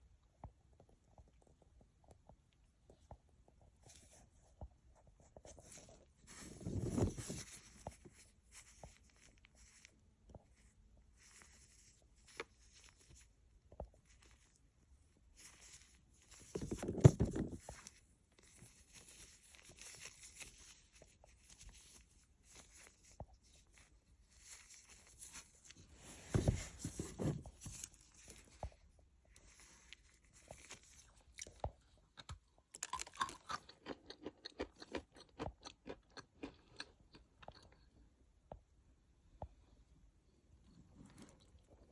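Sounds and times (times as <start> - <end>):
crunchy biting and chewing: 32.2 - 37.9.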